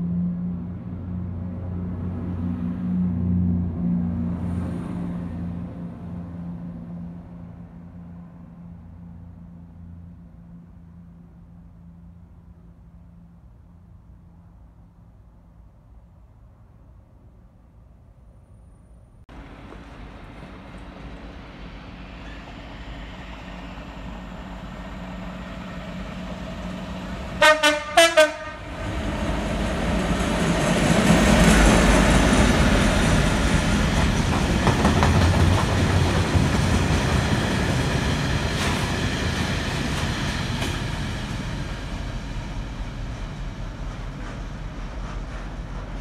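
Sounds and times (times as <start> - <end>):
freight train rumbling past: 0.0 - 15.5, 19.3 - 46.0
wheels clicking over rail joints: 19.3 - 21.6
train horn blasts: 27.3 - 28.8.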